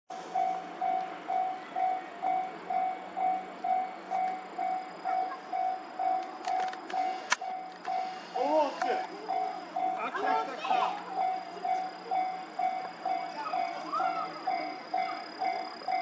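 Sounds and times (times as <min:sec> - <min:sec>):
level crossing alarm ringing: 0:00.2 - 0:16.0
sharp click: 0:06.4 - 0:08.0.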